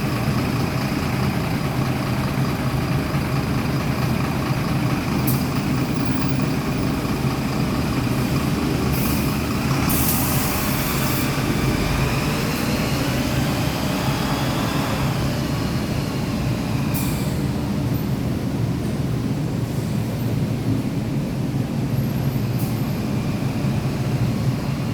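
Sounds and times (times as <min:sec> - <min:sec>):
bus diesel engine idling: 0:00.0 - 0:24.9
air brake hisses: 0:08.9 - 0:11.3, 0:16.9 - 0:17.4.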